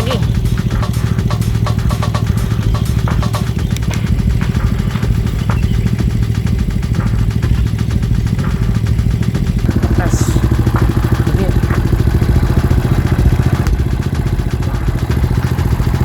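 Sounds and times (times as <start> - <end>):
scooter engine idling: 0.0 - 16.0.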